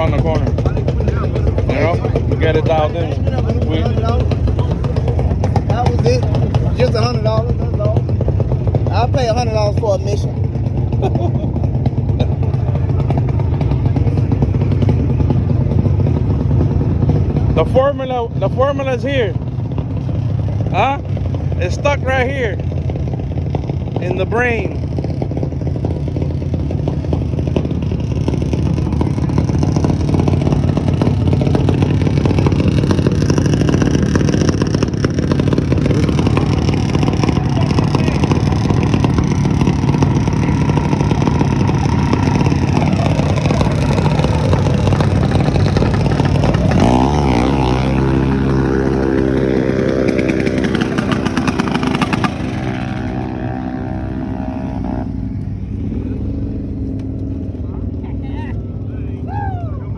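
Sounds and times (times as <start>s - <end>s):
mini bike engine running: 0.0s - 17.7s, 22.6s - 59.5s.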